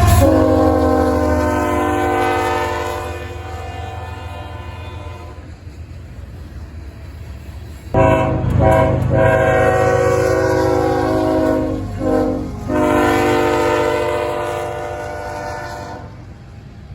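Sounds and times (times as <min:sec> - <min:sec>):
locomotive air horn blasts: 0:00.0 - 0:05.6, 0:08.0 - 0:16.3
freight train rumbling past: 0:00.0 - 0:16.9.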